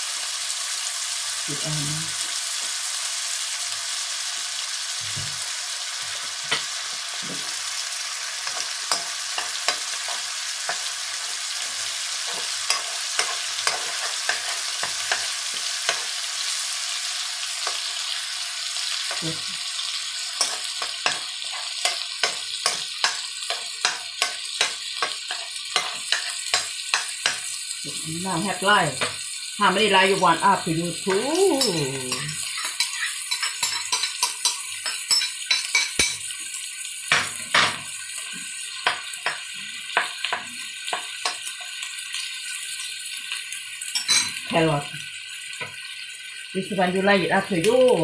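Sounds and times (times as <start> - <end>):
food sizzling in a wok: 0.0 - 48.0
metal spatula scraping a pan: 8.4 - 16.6, 20.2 - 27.5
spatula tapping a pan: 20.4 - 27.5, 37.1 - 41.7.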